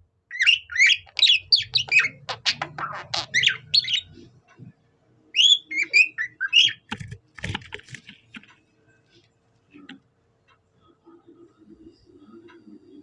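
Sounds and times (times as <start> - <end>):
budgerigar whistled calls: 0.3 - 4.1, 5.3 - 6.9.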